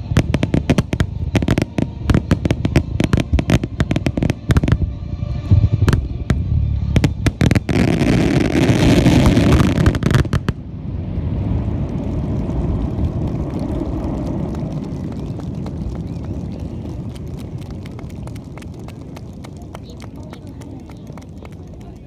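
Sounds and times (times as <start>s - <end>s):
fireworks booming: 0.0s - 21.9s
fireworks crackling: 0.0s - 22.0s
crowd applause: 11.4s - 22.0s.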